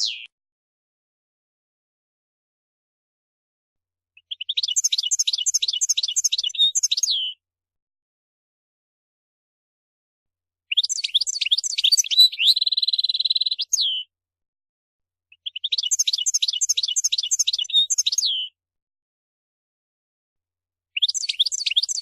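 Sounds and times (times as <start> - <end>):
buzzy bird trill: 0.0 - 0.3
goldfinch twittering song: 0.0 - 0.3, 4.2 - 7.4, 10.7 - 14.1, 15.3 - 18.5, 21.0 - 22.0.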